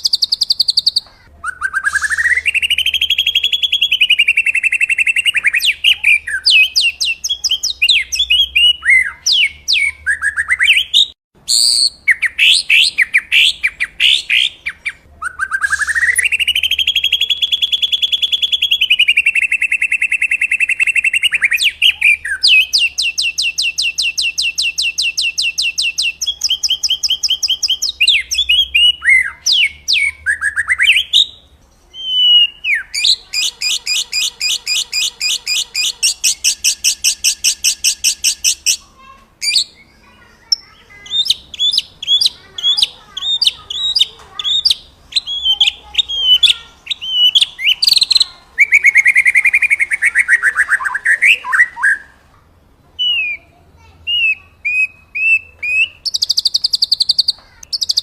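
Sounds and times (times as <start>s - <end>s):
bird swooping whistles: 0.0s - 7.3s, 7.9s - 26.2s
songbird rattling trills: 31.8s - 49.8s.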